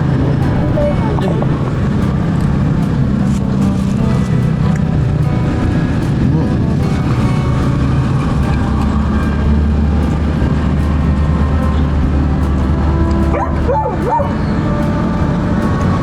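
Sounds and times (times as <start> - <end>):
wind rumble on microphone: 0.0 - 16.0
dog barking and yelping: 13.3 - 14.4.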